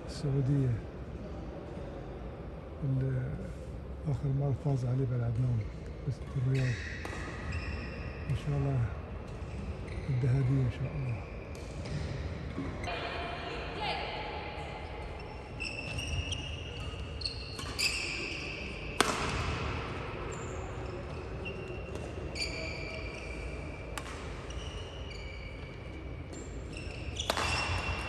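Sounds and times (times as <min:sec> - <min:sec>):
shoes squeaking on court floor: 0:05.2 - 0:12.9, 0:14.8 - 0:28.0
racket striking shuttlecock: 0:19.0 - 0:19.7, 0:23.9 - 0:24.4, 0:27.2 - 0:28.0.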